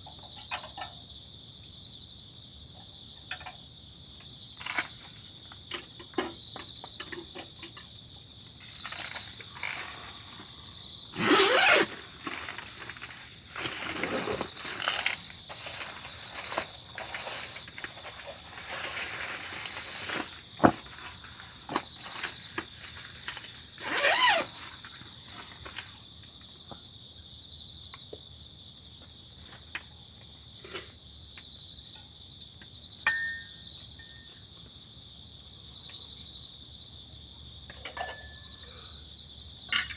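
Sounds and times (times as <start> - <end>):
insects chirping: 0.0 - 39.9
rustling handling noises: 8.6 - 26.0.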